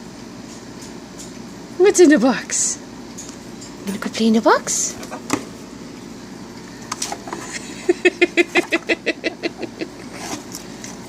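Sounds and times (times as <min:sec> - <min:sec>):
person laughing: 0:07.5 - 0:10.1.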